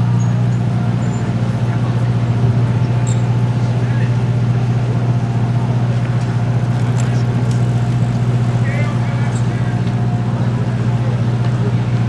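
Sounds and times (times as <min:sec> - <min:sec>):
faint voices: 0:00.0 - 0:04.5, 0:05.7 - 0:12.0
car engine idling: 0:04.2 - 0:12.0.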